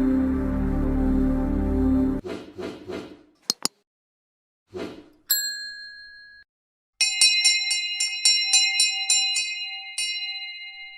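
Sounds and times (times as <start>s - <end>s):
bell-like ding: 5.3s - 10.9s.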